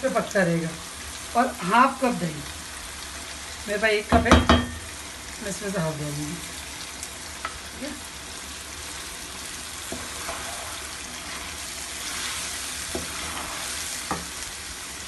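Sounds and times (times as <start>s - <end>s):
chicken sizzling in oil: 0.0s - 15.0s
spatula stirring: 9.6s - 14.9s.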